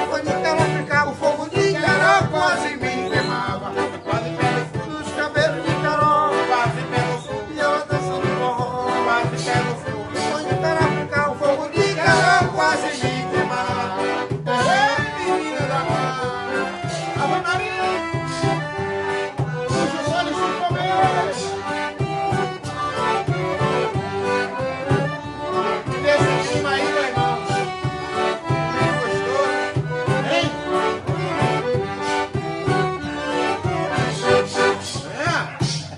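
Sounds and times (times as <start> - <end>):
accordion: 0.0 - 35.9
steady drum beat: 0.0 - 35.9.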